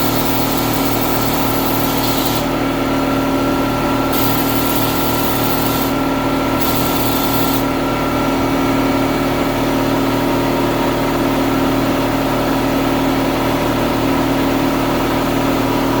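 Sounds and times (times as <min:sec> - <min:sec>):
air compressor humming: 0:00.0 - 0:09.4.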